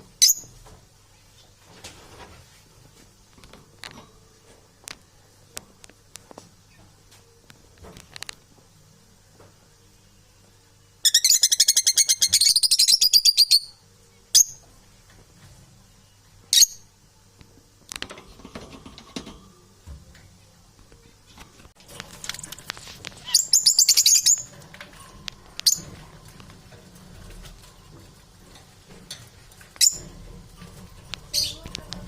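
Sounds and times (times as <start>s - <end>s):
parrot chirps: 11.0s - 14.6s, 23.2s - 24.5s
parrots chattering: 23.1s - 24.5s, 31.2s - 32.0s.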